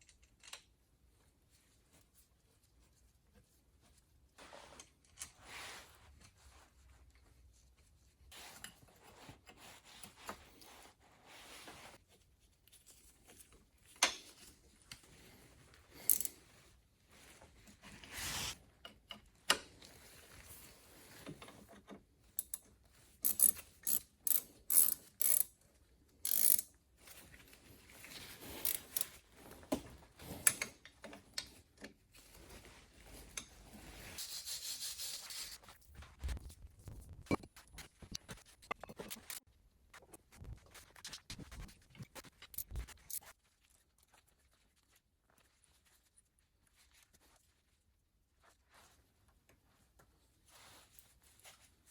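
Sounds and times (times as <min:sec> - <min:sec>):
metal clicks and scrapes: 0:16.0 - 0:16.4, 0:26.3 - 0:26.7, 0:28.6 - 0:29.2, 0:36.9 - 0:39.4
socket ratchet clicking: 0:16.1 - 0:16.3, 0:23.2 - 0:25.5, 0:26.3 - 0:26.6, 0:28.6 - 0:29.1.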